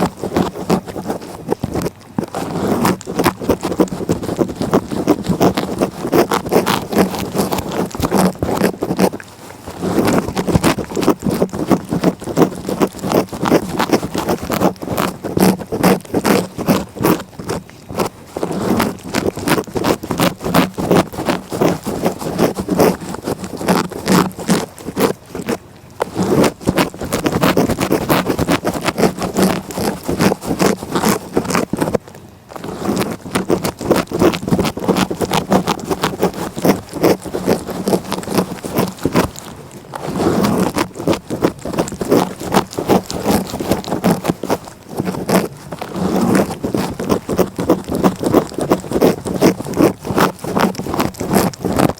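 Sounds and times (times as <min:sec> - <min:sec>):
cat tongue licking: 0:00.0 - 0:51.9.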